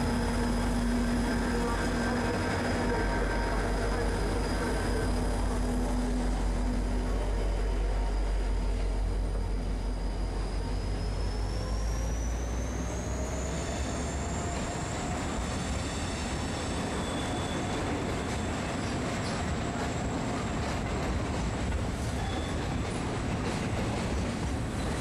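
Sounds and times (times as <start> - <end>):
faint high whine: 0.0 - 17.7
locomotive engine rumble: 0.0 - 25.0.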